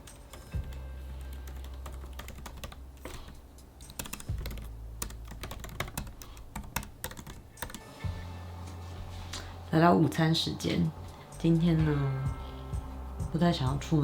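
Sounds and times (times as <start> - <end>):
low hum: 7.9 - 14.0.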